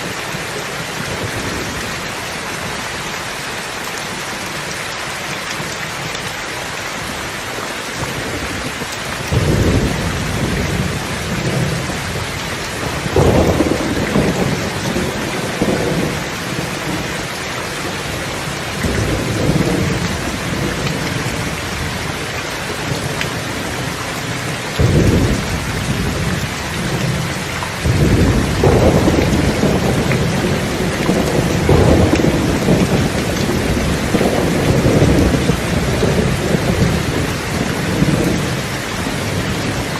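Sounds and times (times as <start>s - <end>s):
rain hissing: 0.0s - 39.9s
thunder rolling: 8.3s - 17.1s, 24.8s - 39.9s.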